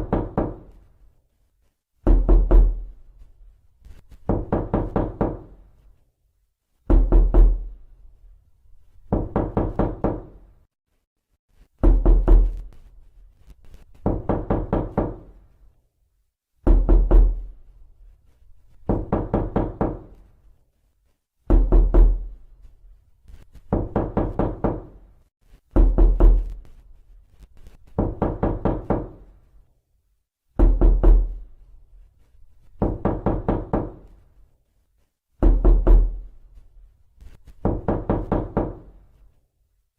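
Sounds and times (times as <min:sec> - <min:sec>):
knocking on a door: 0:00.0 - 0:00.8, 0:02.0 - 0:02.9, 0:04.2 - 0:05.6, 0:06.9 - 0:07.7, 0:09.1 - 0:10.4, 0:11.8 - 0:12.6, 0:14.0 - 0:15.4, 0:16.6 - 0:17.5, 0:18.8 - 0:20.2, 0:21.5 - 0:22.3, 0:23.7 - 0:25.0, 0:25.7 - 0:26.6, 0:27.9 - 0:29.2, 0:30.6 - 0:31.4, 0:32.8 - 0:34.1, 0:35.4 - 0:36.2, 0:37.6 - 0:39.0.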